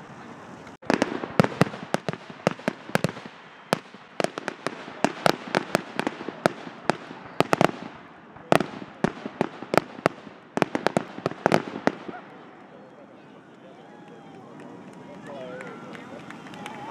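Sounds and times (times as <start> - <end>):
loud firework bang: 0.8 - 12.4.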